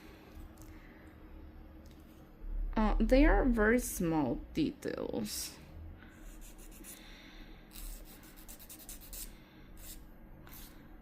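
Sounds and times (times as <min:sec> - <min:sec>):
nail file scratching fingernail: 0:06.2 - 0:07.0, 0:07.7 - 0:10.7.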